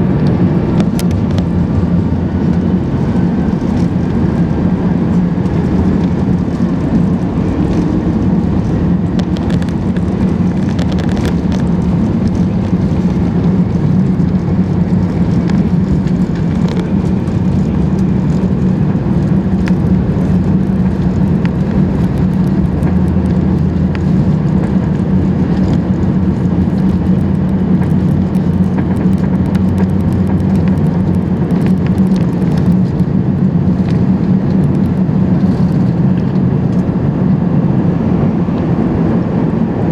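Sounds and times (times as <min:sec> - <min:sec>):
aircraft cabin engine drone: 0:00.0 - 0:39.9
low hum: 0:00.0 - 0:39.9
light clicks and rattles: 0:05.4 - 0:33.0.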